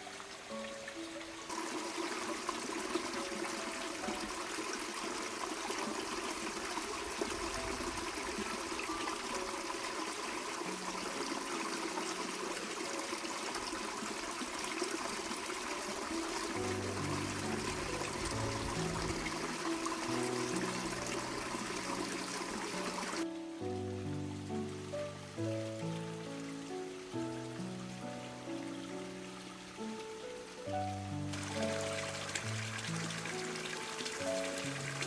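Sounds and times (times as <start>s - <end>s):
faint background music: 0.0s - 35.0s
water running: 0.0s - 35.0s.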